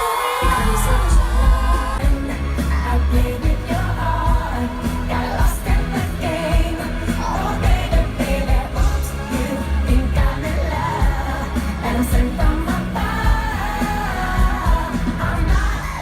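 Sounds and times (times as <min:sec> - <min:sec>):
loud bass-heavy pop music: 0:00.0 - 0:16.0
person singing: 0:00.0 - 0:16.0.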